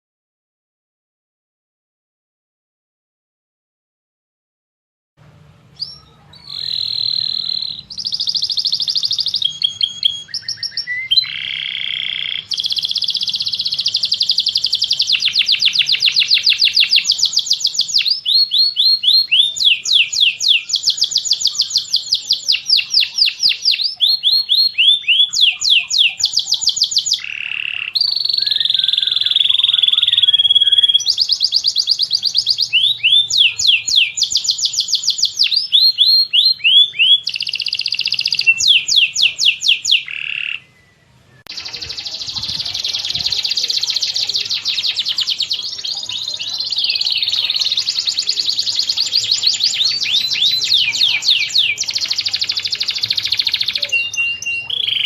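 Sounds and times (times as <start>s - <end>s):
songbirds chirping and trilling: 5.2s - 55.0s.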